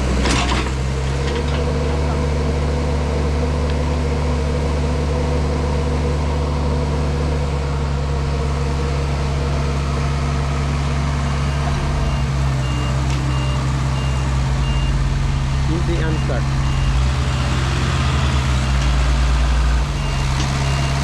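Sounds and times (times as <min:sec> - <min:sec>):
heavy diesel engines under load: 0:00.0 - 0:21.0
reversing alarm beeping: 0:11.1 - 0:21.0.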